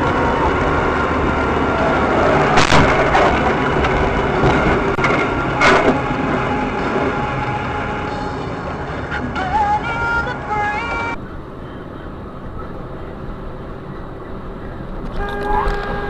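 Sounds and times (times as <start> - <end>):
steady background noise: 0.0 - 16.0
sharp bangs: 2.5 - 6.1.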